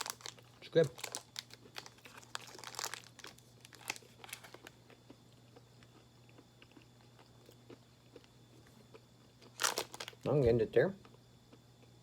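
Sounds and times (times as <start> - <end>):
plastic wrapper crinkling: 0.0 - 4.8, 9.5 - 10.3.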